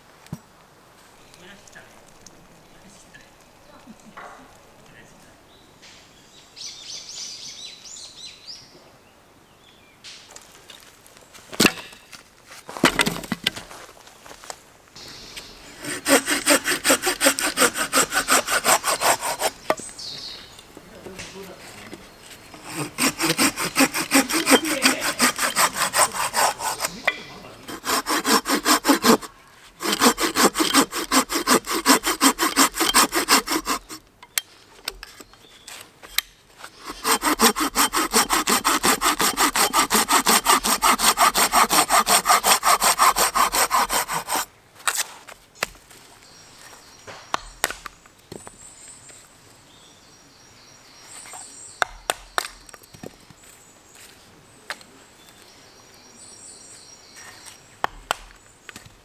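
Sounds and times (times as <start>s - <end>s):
hand saw cutting wood: 15.3s - 19.8s, 21.7s - 34.0s, 36.6s - 45.2s.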